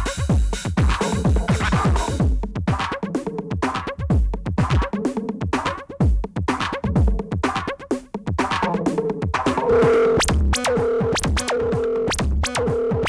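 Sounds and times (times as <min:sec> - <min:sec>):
deep kick drums falling in pitch: 0:00.0 - 0:02.9, 0:04.1 - 0:04.9, 0:06.0 - 0:07.4
sharp clicking percussion: 0:00.0 - 0:12.9
techno drum-machine beats: 0:00.0 - 0:13.0.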